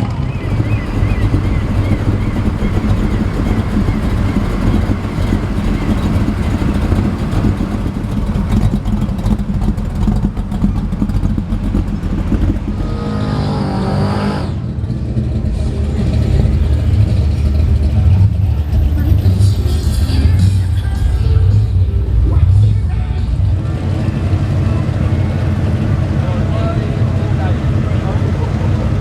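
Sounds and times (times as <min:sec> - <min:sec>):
car engines rumbling: 0:00.0 - 0:29.0
higher wavering engine note: 0:00.2 - 0:14.7.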